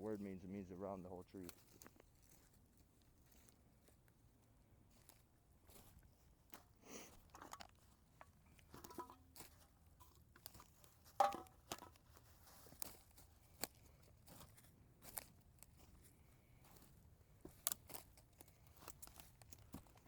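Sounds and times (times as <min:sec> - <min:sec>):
footsteps in dry leaves: 0:01.4 - 0:04.0, 0:12.0 - 0:20.0
plastic bag of cans handled: 0:06.6 - 0:15.9.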